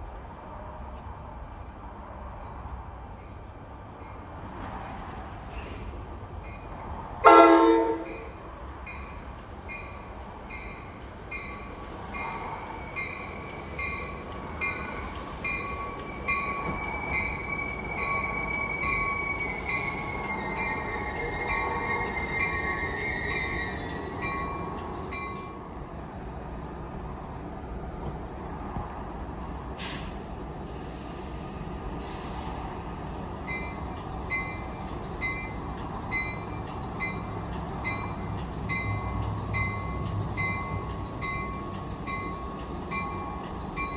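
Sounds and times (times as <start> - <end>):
train rumble: 0.0 - 43.9
train bell dinging: 6.4 - 25.6, 33.5 - 43.9
wheels and brakes squealing: 12.7 - 25.5.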